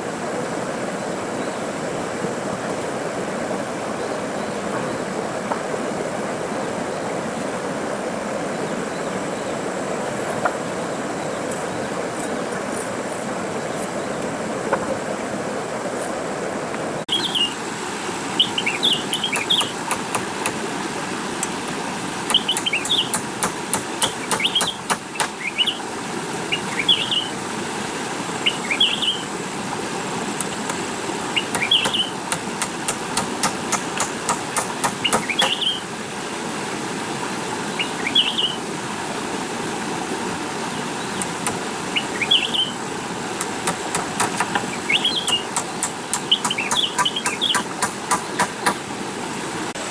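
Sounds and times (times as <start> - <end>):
bird chirping: 17.1 - 17.6, 18.4 - 20.5, 22.3 - 25.8, 26.5 - 27.4, 28.4 - 29.3, 31.2 - 35.9, 37.7 - 38.6, 40.7 - 42.8, 43.4 - 48.8
sharp clicks: 22.3 - 25.3, 31.6 - 35.6, 45.3 - 48.8.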